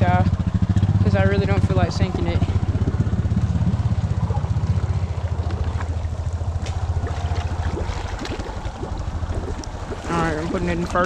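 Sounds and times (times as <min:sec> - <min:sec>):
atv engine running: 0:00.0 - 0:11.0
water sloshing and splashing: 0:02.5 - 0:11.0.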